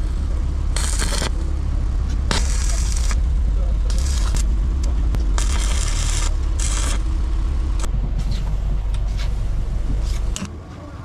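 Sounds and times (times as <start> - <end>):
car engine exhaust rumble: 0.0 - 11.0
hissing scrape bursts: 0.7 - 1.5, 2.1 - 3.2, 3.9 - 4.5, 5.3 - 8.5.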